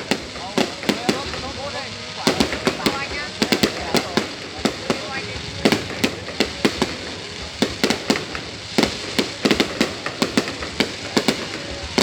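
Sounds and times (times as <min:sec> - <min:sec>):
fireworks bangs: 0:00.0 - 0:12.0
noisy haze: 0:00.0 - 0:12.0.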